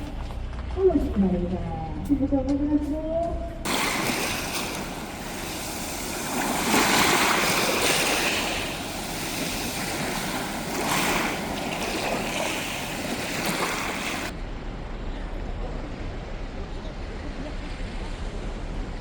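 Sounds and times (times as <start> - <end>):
dull rumble: 0.0 - 18.4
sea waves washing ashore: 3.7 - 14.4.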